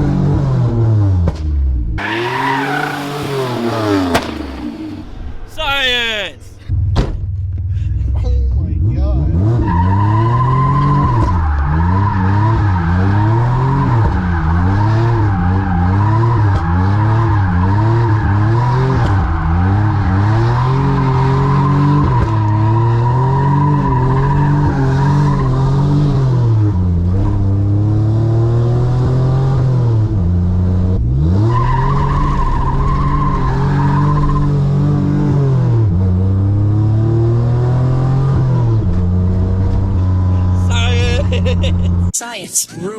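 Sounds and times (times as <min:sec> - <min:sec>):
car engine revving: 0:00.0 - 0:05.5, 0:08.5 - 0:42.1
tires squealing: 0:02.0 - 0:06.3, 0:09.3 - 0:27.8, 0:31.1 - 0:42.1.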